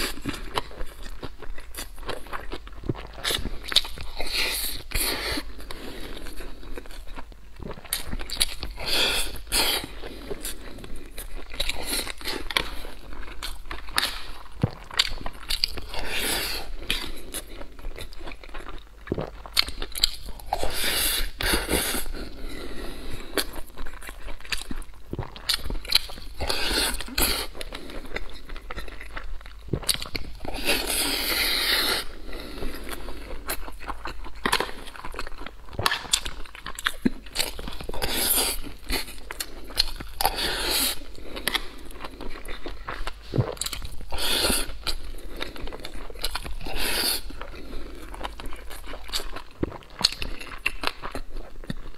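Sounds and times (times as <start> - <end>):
chewing and biting food: 0.0 - 51.9.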